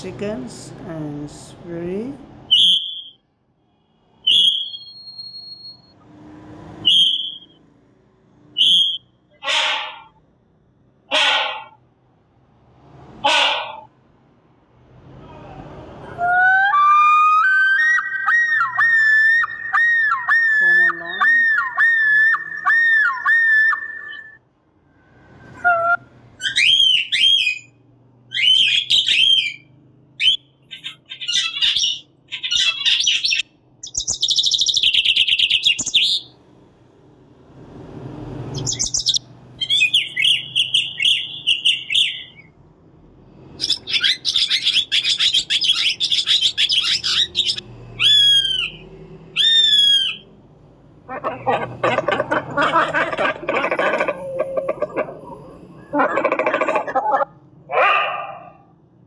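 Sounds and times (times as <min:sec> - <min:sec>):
song thrush song: 0:04.2 - 0:05.9, 0:16.1 - 0:24.4, 0:25.4 - 0:36.4, 0:38.4 - 0:42.6, 0:43.6 - 0:50.5
cormorant rough calls: 0:09.4 - 0:10.1, 0:11.1 - 0:11.8, 0:13.2 - 0:13.9, 0:51.1 - 0:57.8
cockatiel chirps: 0:43.6 - 0:48.8.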